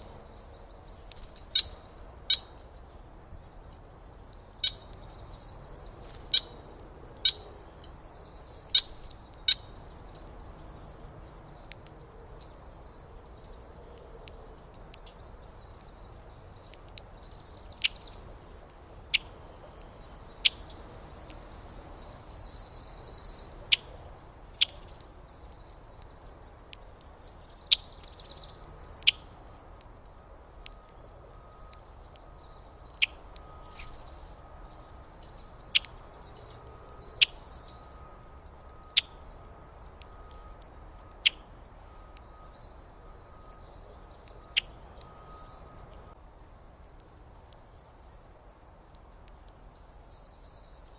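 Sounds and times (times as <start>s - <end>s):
soft bird twittering: 14.9s - 46.2s.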